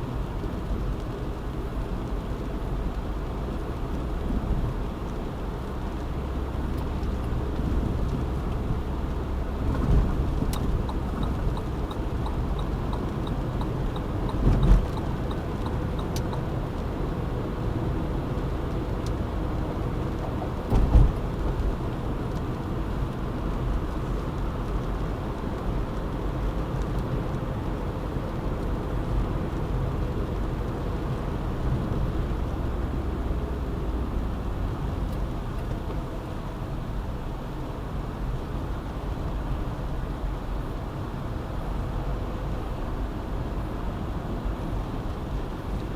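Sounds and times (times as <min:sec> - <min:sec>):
tyre and engine rumble: 0:00.5 - 0:36.3
light regular ticking: 0:10.4 - 0:16.9.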